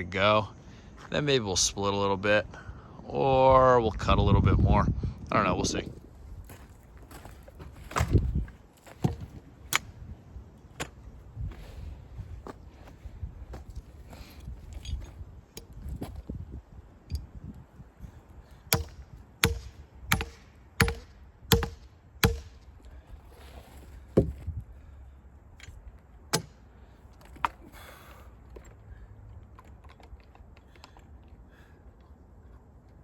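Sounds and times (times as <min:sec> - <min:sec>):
sharp knocks: 0:18.7 - 0:22.5.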